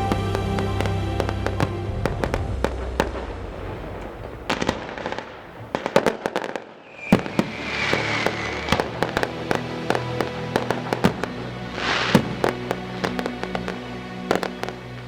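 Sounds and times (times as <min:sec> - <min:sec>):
firework whistle: 0:00.0 - 0:09.3, 0:11.8 - 0:13.2
firework crackling hiss: 0:00.0 - 0:15.0
fireworks bangs and pops: 0:00.1 - 0:15.0.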